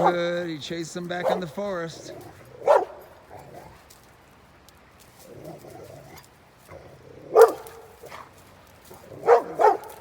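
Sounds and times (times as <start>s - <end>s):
dog barking deeply: 0.0s - 0.3s, 1.2s - 1.5s, 2.6s - 3.7s, 7.2s - 8.3s, 9.0s - 10.0s.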